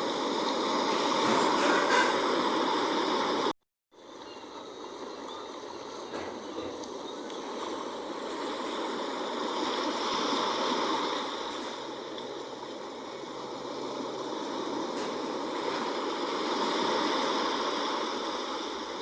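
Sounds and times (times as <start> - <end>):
sea waves washing on shore: 0.0 - 19.0.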